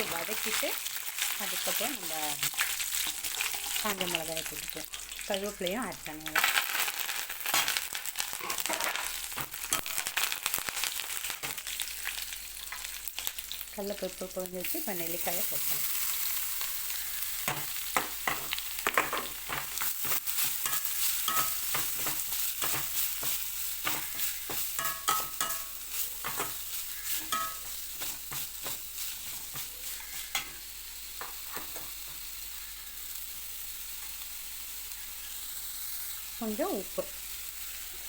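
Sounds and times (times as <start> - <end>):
food sizzling in oil: 0.0 - 38.0
spatula scraping a pan: 7.4 - 10.2, 15.6 - 30.6.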